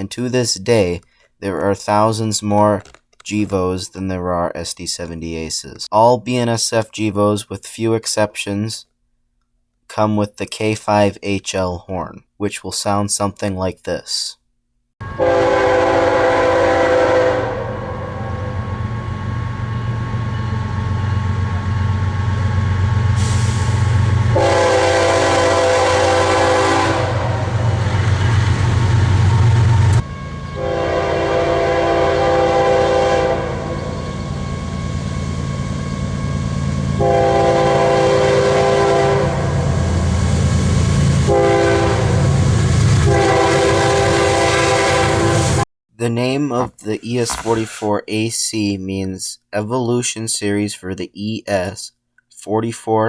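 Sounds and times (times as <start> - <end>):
locomotive air horn blasts: 15.0 - 18.6, 23.2 - 27.8, 29.4 - 39.8, 41.1 - 45.6
low rumble of train: 15.0 - 45.6.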